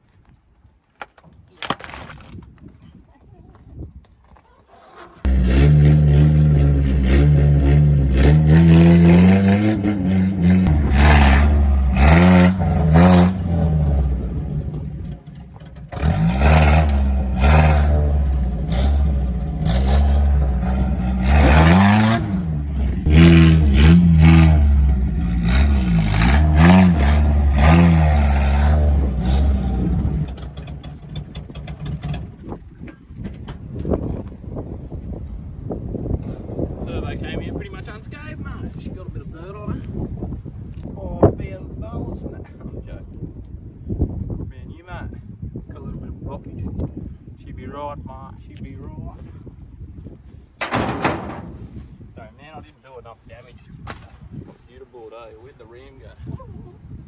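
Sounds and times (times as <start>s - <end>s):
pickup truck engine revving: 4.9s - 32.4s.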